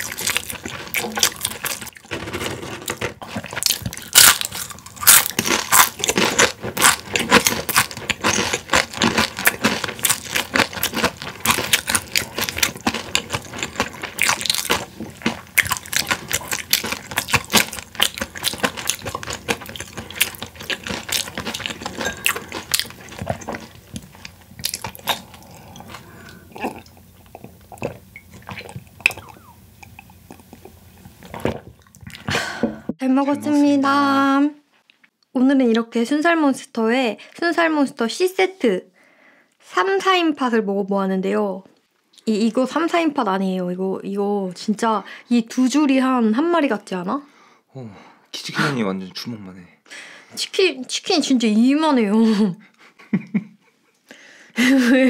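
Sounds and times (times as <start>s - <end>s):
crunching and chewing fried chicken: 0.0s - 32.3s.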